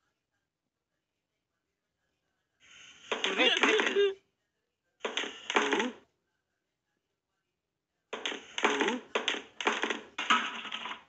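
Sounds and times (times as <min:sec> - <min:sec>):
person speaking: 0:03.1 - 0:04.2.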